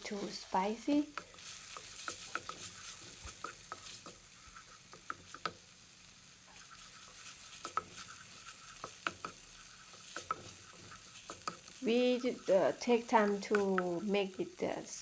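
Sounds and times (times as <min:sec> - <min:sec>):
crackles and clicks of stirring: 0:00.0 - 0:14.6
curry paste sizzling in a pan: 0:00.0 - 0:15.0.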